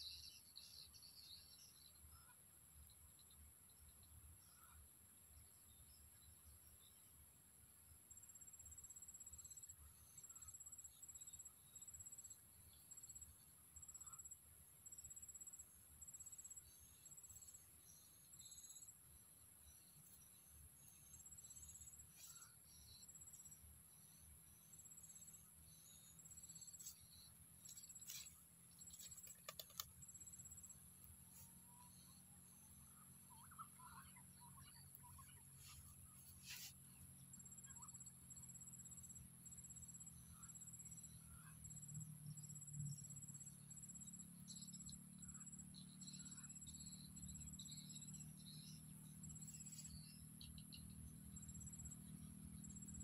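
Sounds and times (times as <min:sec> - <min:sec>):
insects chirping trills: 0:00.0 - 0:53.0
insect trilling: 0:24.6 - 0:32.0
sharp clicks: 0:29.0 - 0:30.0.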